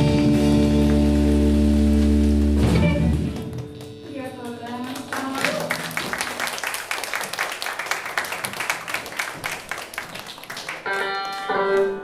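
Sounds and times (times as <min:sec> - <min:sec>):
hands clapping: 0:00.8 - 0:12.0
instrumental music: 0:10.8 - 0:12.0.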